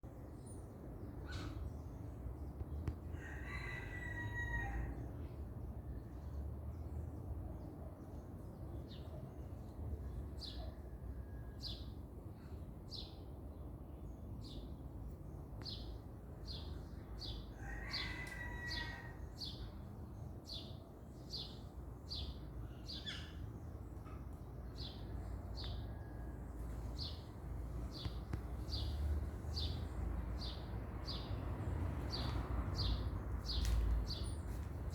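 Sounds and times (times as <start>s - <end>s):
rooster crowing: 3.2s - 5.0s, 17.6s - 19.2s.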